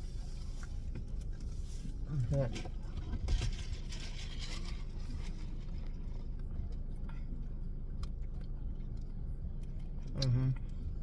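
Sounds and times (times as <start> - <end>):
faint eating clicks: 6.3 - 11.0.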